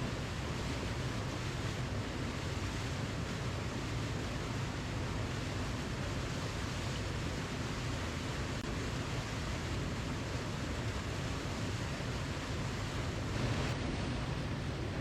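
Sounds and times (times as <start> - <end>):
waterfall rushing: 13.0 - 15.0.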